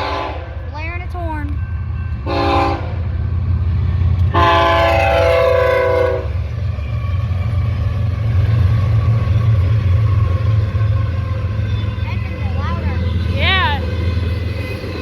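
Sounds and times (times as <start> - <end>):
train air horn blasts: 0.0 - 0.6, 2.2 - 3.0, 4.3 - 6.4
train rumbling: 0.0 - 15.0.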